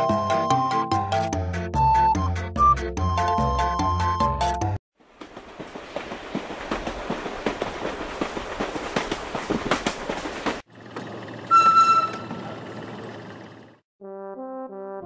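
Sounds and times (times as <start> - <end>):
train rumbling on track: 5.0 - 13.8
loud high whistle: 11.5 - 12.4.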